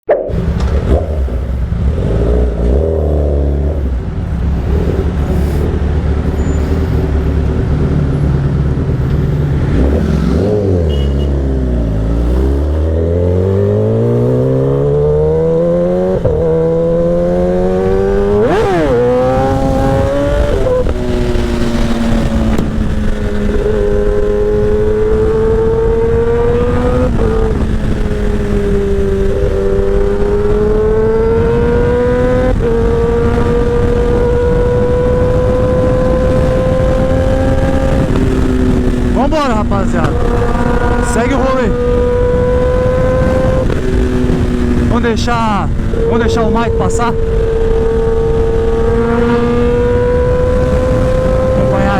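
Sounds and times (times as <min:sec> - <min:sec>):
sportbike engine at highway speed: 0:00.1 - 0:51.9
wind rushing: 0:12.3 - 0:51.9.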